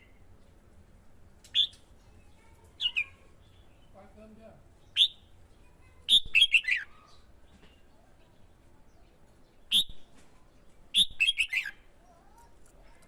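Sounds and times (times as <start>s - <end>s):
bulbul singing: 1.5s - 1.9s, 2.8s - 7.9s, 8.8s - 10.1s, 10.8s - 12.4s.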